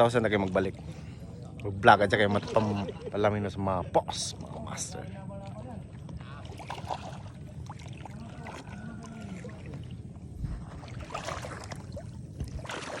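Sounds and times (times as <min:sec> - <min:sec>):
water around canoe hull: 0:00.0 - 0:13.0
faint voices: 0:03.7 - 0:10.6
splashes and knocks: 0:06.1 - 0:13.0.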